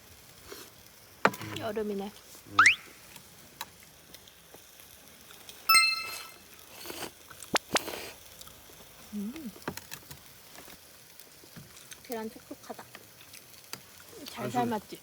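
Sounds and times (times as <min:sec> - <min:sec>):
tableware clink: 0:05.7 - 0:06.4.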